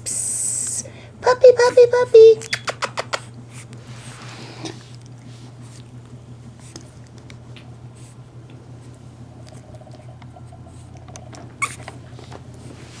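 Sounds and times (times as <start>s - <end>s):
puppy paws clicking and scrabbling: 1.3s - 13.0s
puppy squeak: 1.4s - 3.2s.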